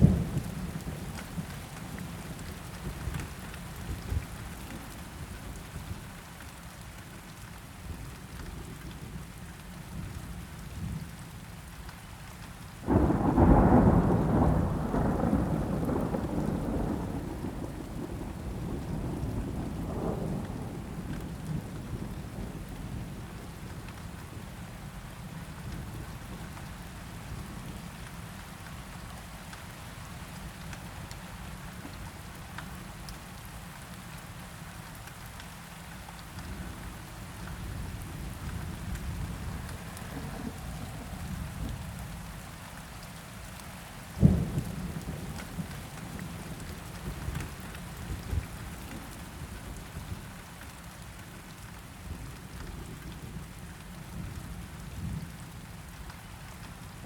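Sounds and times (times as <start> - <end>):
steady rain falling: 0.0 - 57.0
thunderclap rumbling: 12.9 - 22.1, 39.0 - 42.0.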